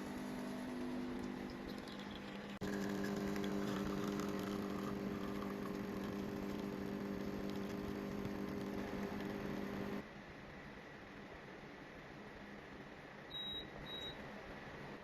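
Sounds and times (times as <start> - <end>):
espresso machine pump humming: 0.0 - 10.0.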